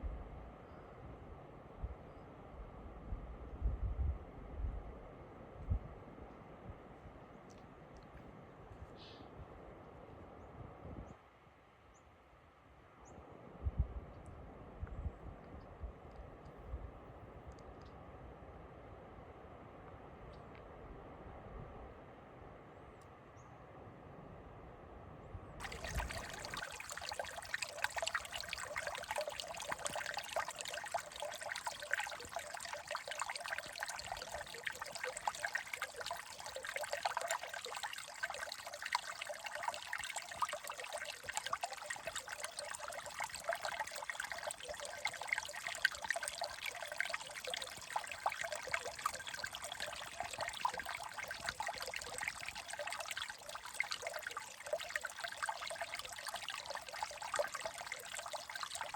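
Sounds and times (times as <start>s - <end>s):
stream trickling: 25.6s - 58.9s.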